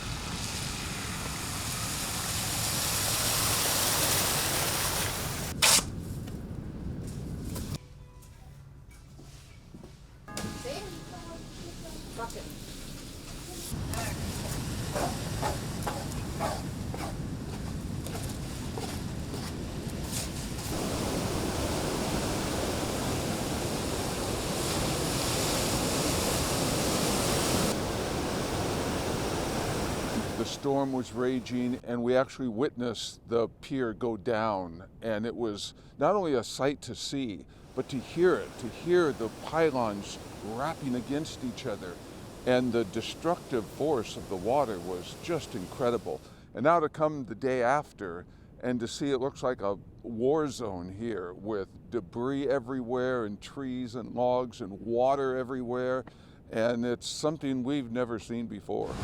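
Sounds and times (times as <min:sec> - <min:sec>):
ocean surf breaking: 0:10.3 - 0:31.8, 0:37.7 - 0:46.2.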